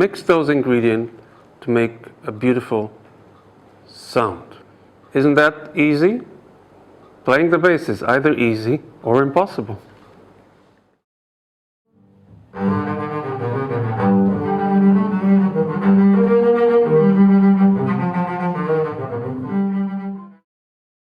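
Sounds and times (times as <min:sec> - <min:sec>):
bowed double bass melody: 0:11.9 - 0:20.4.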